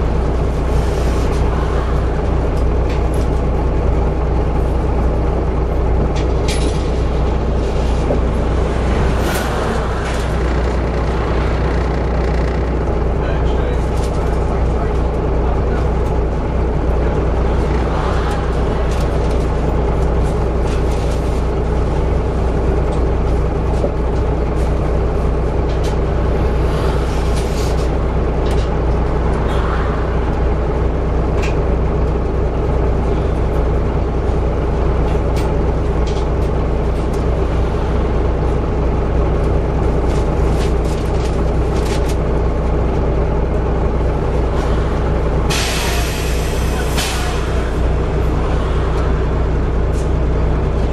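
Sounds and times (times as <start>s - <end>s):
bus engine droning: 0.0s - 50.9s
sharp clicks and rattles: 8.0s - 13.2s.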